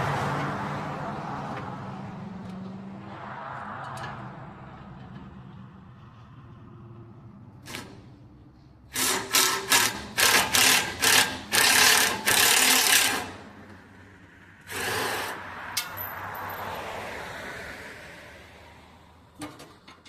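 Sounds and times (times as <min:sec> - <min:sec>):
power tool bursts: 0:08.9 - 0:13.4.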